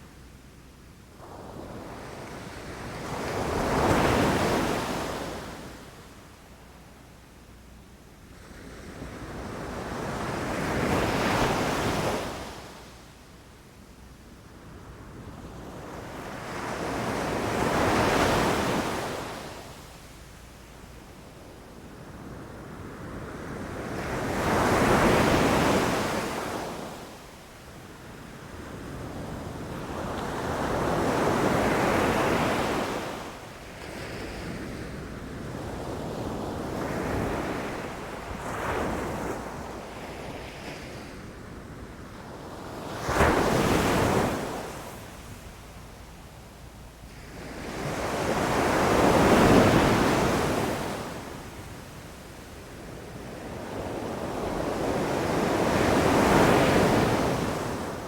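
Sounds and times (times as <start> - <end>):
sea waves crashing on beach: 42.5 - 58.0.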